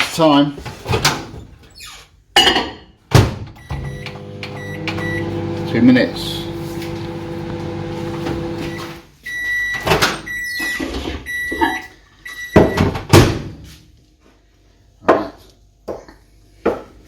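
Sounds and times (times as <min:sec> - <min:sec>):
microwave oven beeps: 0:03.6 - 0:13.0.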